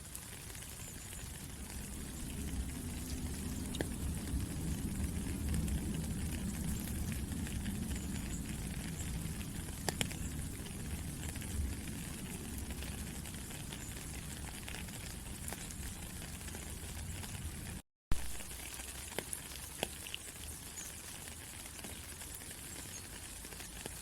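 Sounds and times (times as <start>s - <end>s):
raindrop ticks: 0.0s - 24.0s
steady rainfall: 0.0s - 24.0s
low rumble: 1.0s - 17.8s.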